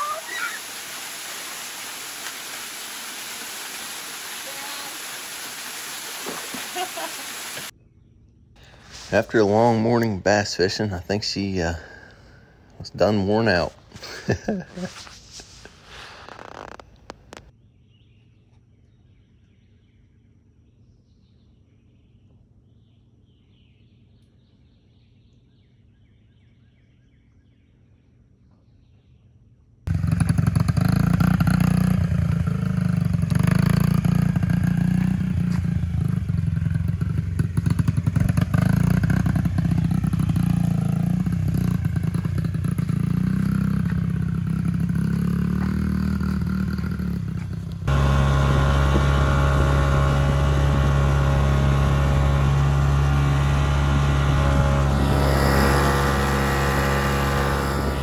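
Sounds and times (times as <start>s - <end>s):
faint outdoor background: 6.7s - 29.9s
engine running with clatter: 29.9s - 58.0s.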